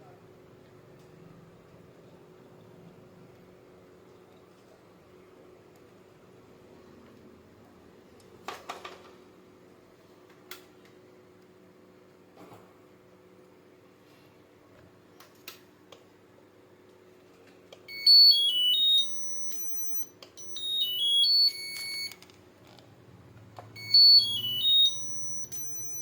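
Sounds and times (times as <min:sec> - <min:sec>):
electronic beeper chime tune: 0:17.9 - 0:22.1, 0:23.8 - 0:26.0.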